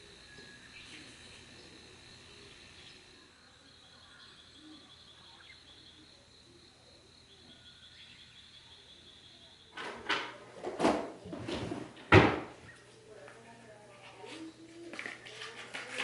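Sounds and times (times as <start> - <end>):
insects chirring: 0.0 - 11.2.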